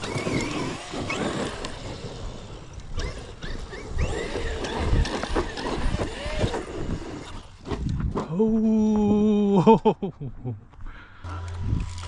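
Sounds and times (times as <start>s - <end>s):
electric motor whining: 0.0s - 7.6s, 11.2s - 12.0s.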